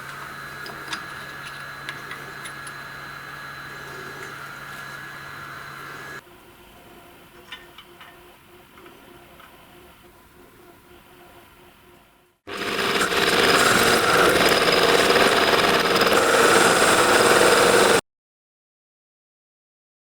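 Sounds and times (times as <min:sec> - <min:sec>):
power tool running: 0:00.0 - 0:06.2, 0:12.5 - 0:18.0.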